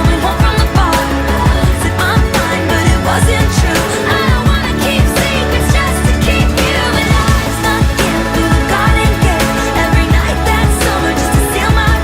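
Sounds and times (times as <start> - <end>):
person singing: 0.0 - 12.0
pop music with beat: 0.0 - 12.0.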